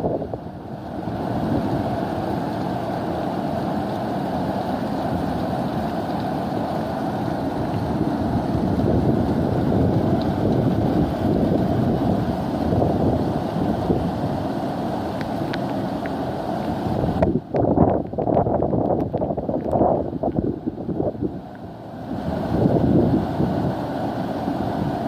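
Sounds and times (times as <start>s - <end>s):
wind blowing across microphone: 0.0s - 2.1s, 7.5s - 14.6s, 16.7s - 25.0s.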